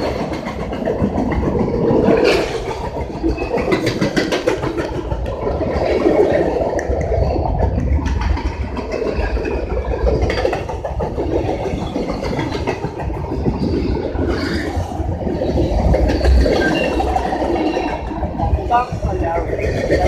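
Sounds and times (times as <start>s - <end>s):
train passing close by: 0.0s - 20.0s.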